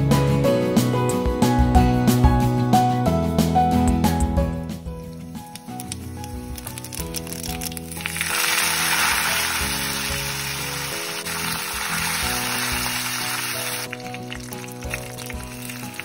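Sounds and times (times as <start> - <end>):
background music: 0.0 - 16.0
leaves sizzling in hot oil: 5.0 - 16.0.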